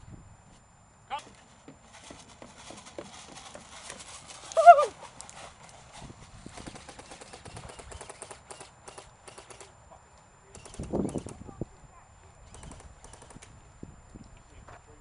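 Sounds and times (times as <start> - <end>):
wavering cry: 4.4 - 5.0.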